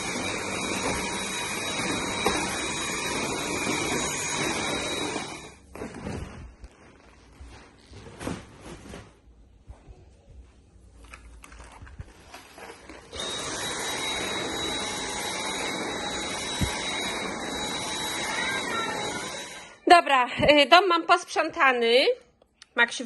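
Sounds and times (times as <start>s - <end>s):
vacuum cleaner running: 0.0s - 6.4s, 12.9s - 19.8s
household knocks and clatters: 5.7s - 9.3s.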